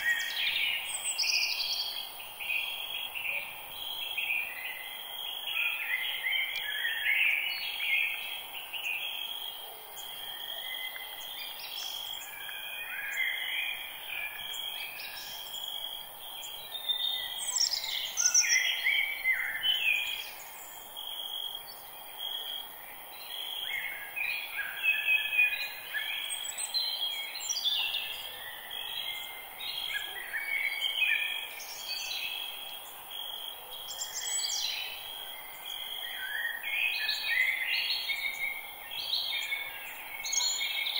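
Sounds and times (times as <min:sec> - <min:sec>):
birds chirping and singing: 0:16.5 - 0:20.7.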